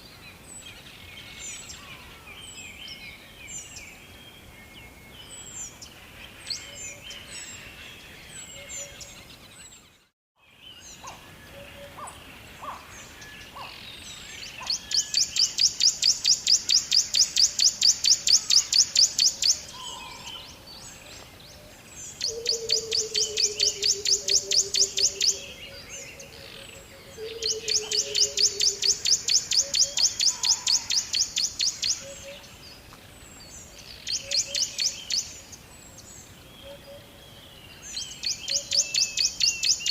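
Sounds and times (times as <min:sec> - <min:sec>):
low falling pulsed bird call: 0:00.0 - 0:32.8
steady background hiss: 0:10.6 - 0:39.9.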